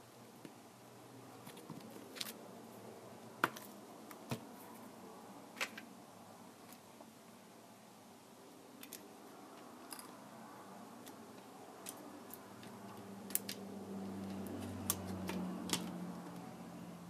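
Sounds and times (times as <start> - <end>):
hand tools clicking and tapping: 11.0 - 16.5.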